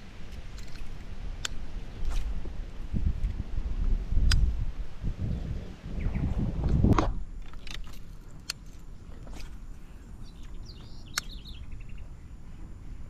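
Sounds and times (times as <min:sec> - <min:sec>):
bird chirping: 0:05.3 - 0:06.5, 0:08.9 - 0:13.0
sharp clicks: 0:10.4 - 0:11.6.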